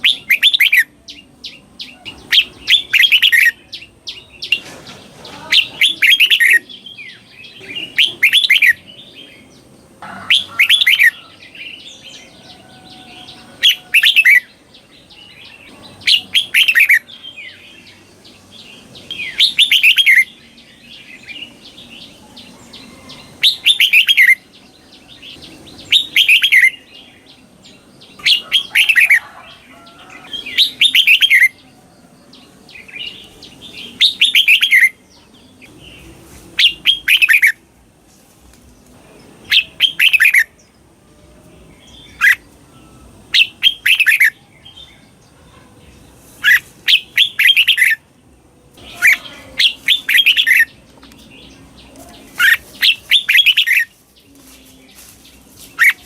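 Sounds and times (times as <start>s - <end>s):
bulbul whistled song: 0.0s - 4.6s, 19.1s - 26.9s, 30.5s - 31.8s, 35.6s - 37.6s, 39.5s - 40.6s, 41.8s - 45.0s, 52.3s - 56.0s
faint bird chirping: 0.0s - 37.7s, 38.6s - 56.0s.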